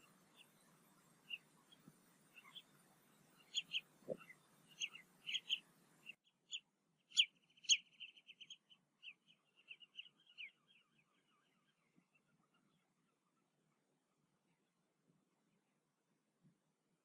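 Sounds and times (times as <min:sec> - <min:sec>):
bird chirping and chattering: 0:01.3 - 0:02.7, 0:03.4 - 0:10.5.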